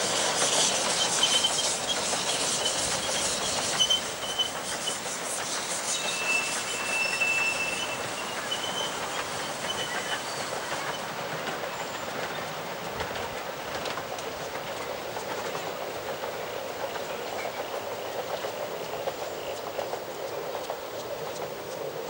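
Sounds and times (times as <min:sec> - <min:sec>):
high wheel squeal: 0:00.0 - 0:12.4
train carriages rumbling on track: 0:00.0 - 0:22.0
wheels clicking over rail joints: 0:00.2 - 0:22.0.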